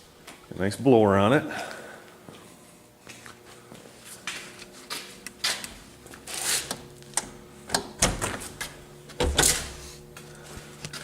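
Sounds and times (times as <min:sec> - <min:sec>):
faint steady hum: 0:00.0 - 0:11.0
short scraping rustles: 0:06.2 - 0:06.7.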